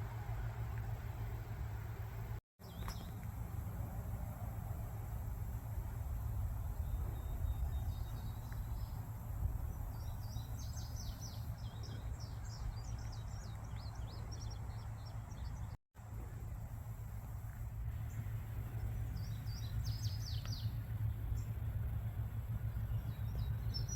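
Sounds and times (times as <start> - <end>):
steady low rumble: 0.0 - 23.9
birds chirping: 6.3 - 15.8, 17.9 - 23.9.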